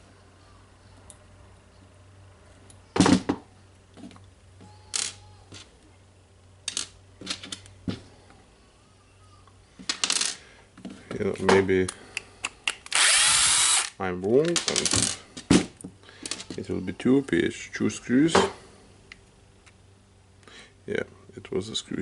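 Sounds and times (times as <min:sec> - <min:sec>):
small metal parts clicking and clattering: 0:04.9 - 0:05.7, 0:06.6 - 0:07.7.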